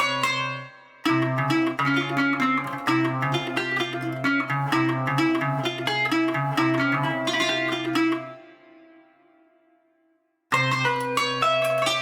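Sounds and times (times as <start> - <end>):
plucked string instrument run: 1.1 - 8.6, 10.5 - 12.0.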